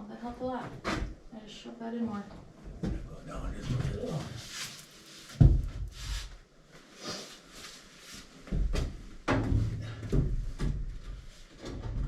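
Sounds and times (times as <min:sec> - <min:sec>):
heavy thumps on wooden floor: 0:05.4 - 0:06.0.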